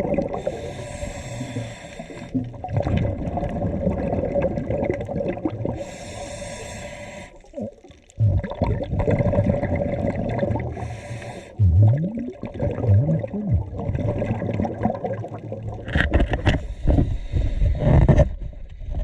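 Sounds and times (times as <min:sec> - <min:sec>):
bubbling exhalations: 0:00.0 - 0:17.1
hissing regulator inhalations: 0:00.4 - 0:02.5, 0:05.8 - 0:07.5, 0:10.8 - 0:11.9.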